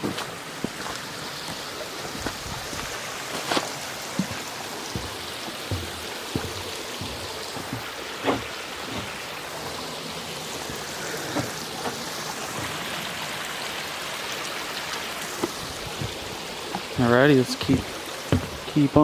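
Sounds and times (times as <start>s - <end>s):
stream water running: 0.0s - 19.0s
light knocks: 17.7s - 18.7s.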